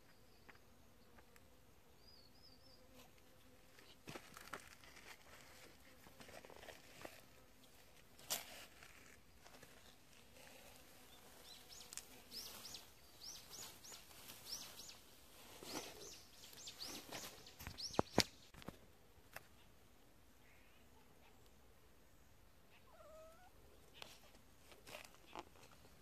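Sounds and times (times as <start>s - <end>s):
small bird chirping: 11.0s - 18.6s.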